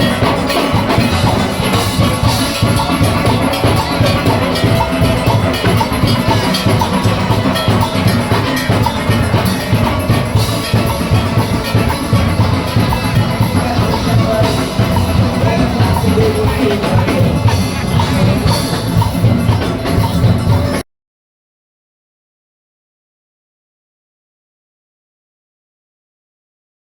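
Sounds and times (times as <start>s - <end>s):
drum kit and percussion: 0.0s - 20.8s
steel orchestra playing: 0.0s - 20.8s.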